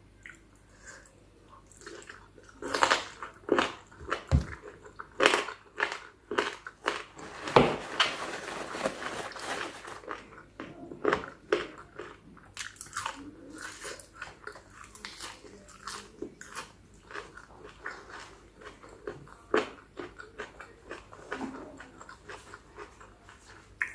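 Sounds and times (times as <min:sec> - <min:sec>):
crunchy chewing: 0:11.0 - 0:23.9.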